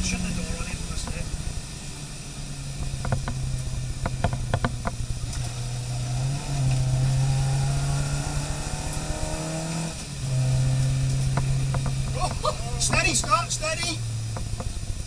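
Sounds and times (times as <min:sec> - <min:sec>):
racing car engine: 0:00.0 - 0:15.0
sharp clicks or knocks: 0:02.9 - 0:05.5, 0:11.0 - 0:13.5.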